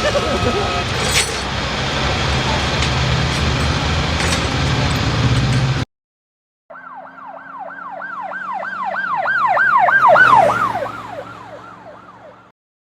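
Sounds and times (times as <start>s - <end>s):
vehicle engine hum: 0.0s - 5.9s, 6.7s - 12.5s
siren in fast yelp mode: 6.7s - 12.5s.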